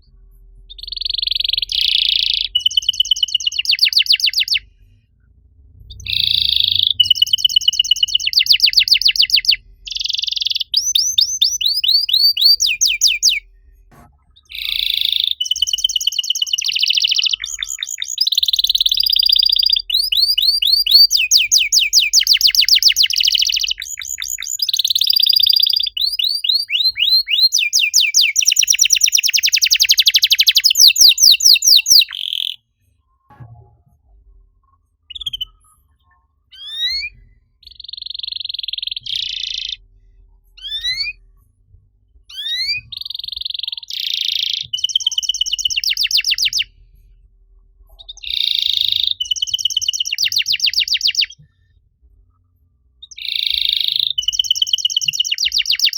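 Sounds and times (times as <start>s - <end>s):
canary singing trills: 0.5s - 4.7s, 5.9s - 13.4s, 14.3s - 32.6s, 35.0s - 41.4s, 42.3s - 46.8s, 47.9s - 51.4s, 53.0s - 55.9s.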